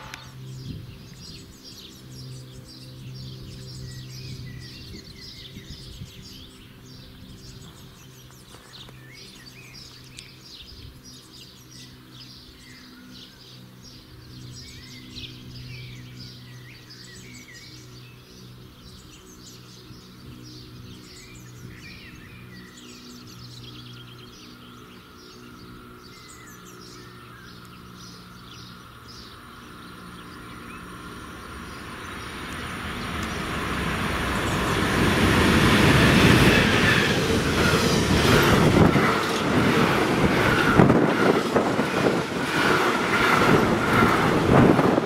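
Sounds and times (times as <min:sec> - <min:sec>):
songbirds chirping and singing: 0:00.0 - 0:33.6
steady low hum: 0:00.0 - 0:45.0.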